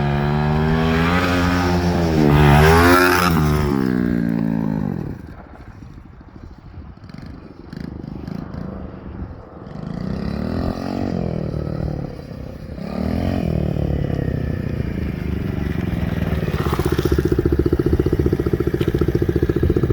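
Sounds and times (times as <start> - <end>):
pit bike engine revving: 0.0 - 5.4, 7.0 - 19.9.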